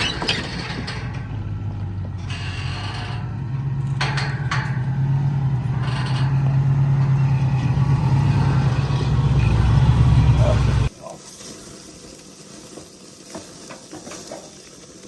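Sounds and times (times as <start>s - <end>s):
vehicle engine humming: 0.0s - 10.9s.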